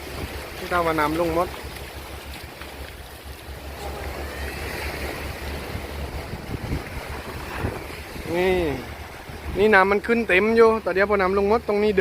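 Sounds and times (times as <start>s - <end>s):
sea waves washing: 0.0s - 12.0s
wind buffeting microphone: 1.4s - 10.5s.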